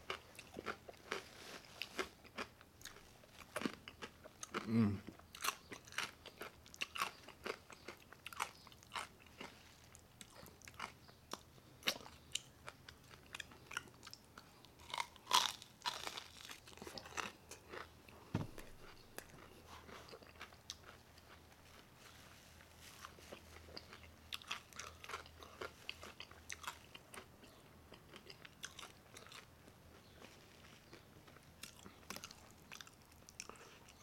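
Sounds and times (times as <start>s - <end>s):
crunching fried pork skin: 14.8s - 17.9s
dull low thump: 18.3s - 19.0s.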